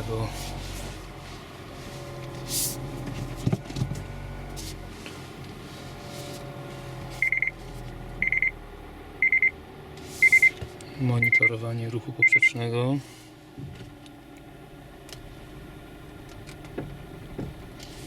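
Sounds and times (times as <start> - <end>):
car engine idling: 0.0 - 18.0
high warning beep: 7.2 - 7.6, 8.2 - 8.6, 9.2 - 9.5, 10.2 - 10.6, 11.2 - 11.6, 12.2 - 12.6
dull suspension knocks: 16.6 - 17.7.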